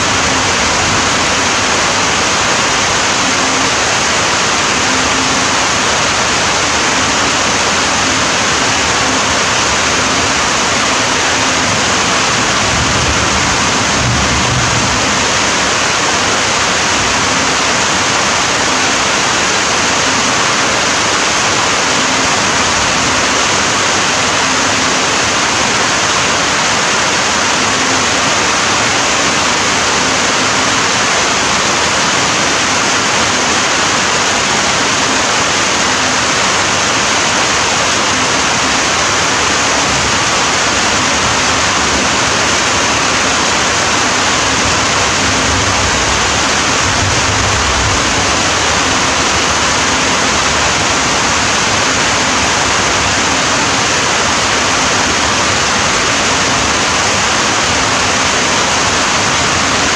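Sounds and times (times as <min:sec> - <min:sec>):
heavy rain: 0:00.0 - 0:59.9
low rumble: 0:11.7 - 0:16.0, 0:44.6 - 0:50.6.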